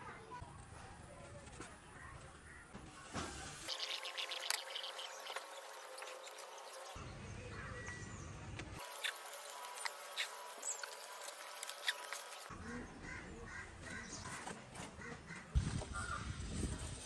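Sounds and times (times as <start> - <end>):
bird calling: 8.8 - 14.4.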